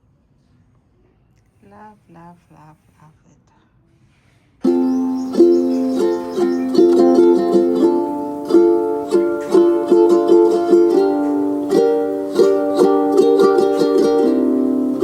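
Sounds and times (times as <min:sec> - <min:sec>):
plucked-string instrumental music: 0:04.6 - 0:15.0.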